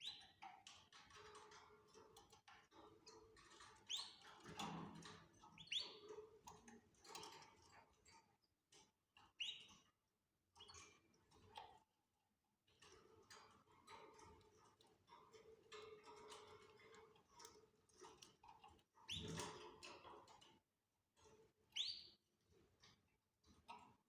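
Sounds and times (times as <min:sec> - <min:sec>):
faint canary chirps: 0:00.0 - 0:00.4, 0:03.8 - 0:04.3, 0:05.6 - 0:06.1, 0:09.2 - 0:09.8, 0:19.0 - 0:19.4, 0:21.7 - 0:22.2.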